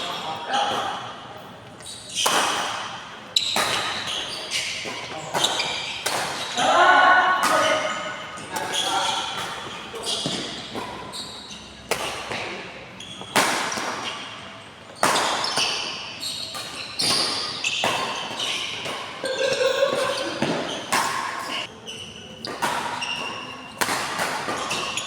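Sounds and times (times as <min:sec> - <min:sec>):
shoe squeaks: 0:01.7 - 0:06.6, 0:07.5 - 0:11.9, 0:12.9 - 0:13.4, 0:14.0 - 0:23.8, 0:24.5 - 0:25.0
rackets striking shuttlecock: 0:22.5 - 0:25.0.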